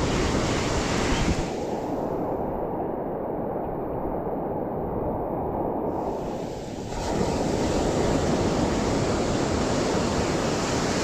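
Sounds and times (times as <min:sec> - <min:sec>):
surf rushing on beach: 0:00.0 - 0:03.0, 0:05.2 - 0:11.0
wind on microphone: 0:00.0 - 0:11.0.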